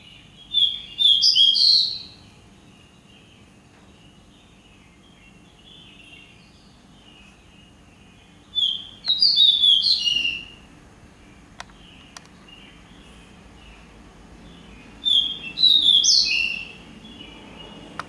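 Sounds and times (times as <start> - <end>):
songbird whistling: 0.0 - 2.3, 8.3 - 10.6, 14.7 - 17.9
soft chirping: 0.0 - 18.0
sharp clicks: 11.6 - 12.4.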